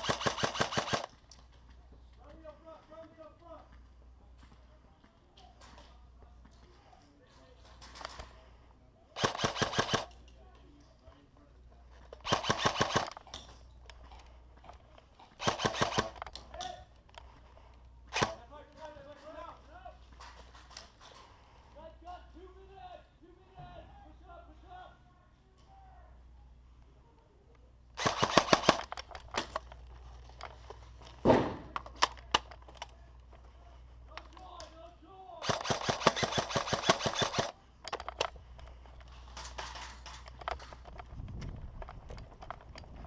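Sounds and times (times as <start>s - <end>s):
airsoft gun firing bursts: 0.0s - 1.1s, 9.2s - 10.1s, 12.2s - 13.4s, 15.4s - 16.3s, 18.1s - 18.4s, 28.0s - 29.5s, 35.4s - 37.6s.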